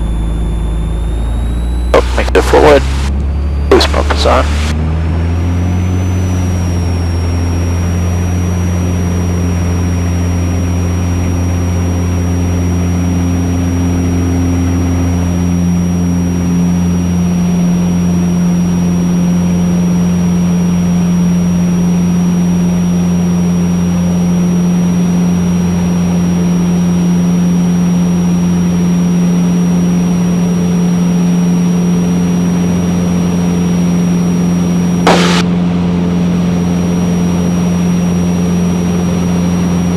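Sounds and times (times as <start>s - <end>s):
high whine: 0.0s - 12.1s, 34.5s - 38.8s
propeller aircraft engine: 0.0s - 39.9s.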